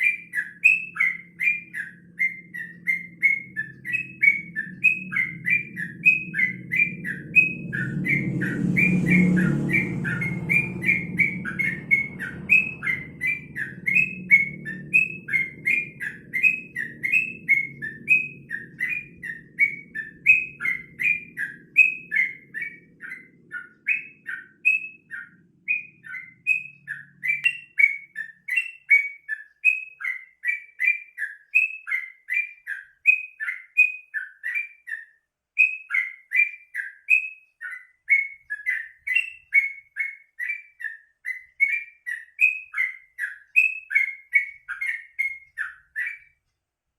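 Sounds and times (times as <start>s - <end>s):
bird chattering song: 0.0s - 46.4s
low rumble: 2.7s - 23.5s.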